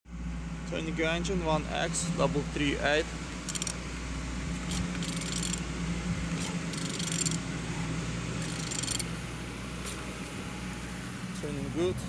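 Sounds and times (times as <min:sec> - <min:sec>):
steady low hum: 0:00.1 - 0:12.0
ratcheting clicks: 0:03.5 - 0:03.8, 0:04.7 - 0:05.6, 0:06.7 - 0:07.4, 0:08.4 - 0:09.1.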